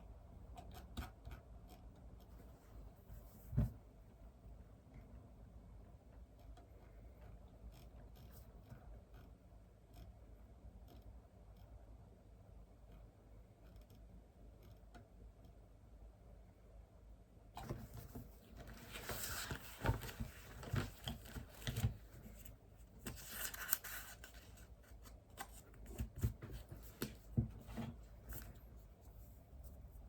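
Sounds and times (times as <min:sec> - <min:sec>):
paper rustling and scratching: 0:17.6 - 0:30.0.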